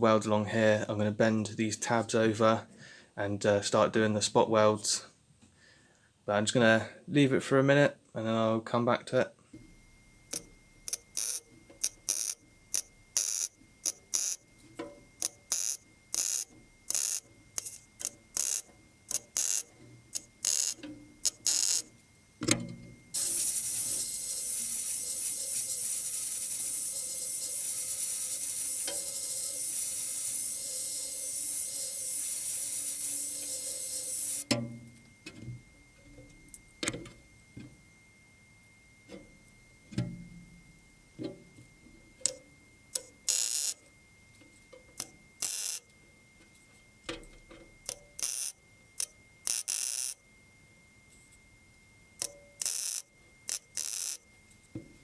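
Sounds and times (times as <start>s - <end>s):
continuous weld run: 9.5s - 37.7s, 38.8s - 55.0s
crackling tack welds: 9.6s - 34.5s, 42.2s - 43.9s, 44.9s - 45.9s, 47.8s - 50.2s, 52.2s - 54.2s.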